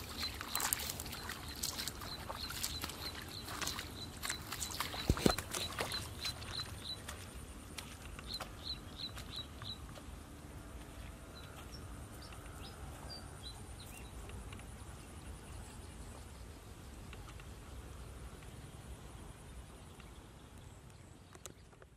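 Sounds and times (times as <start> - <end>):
bird chirping: 0.0 - 7.4, 8.2 - 10.0
squelching steps in wet mud: 0.0 - 13.1.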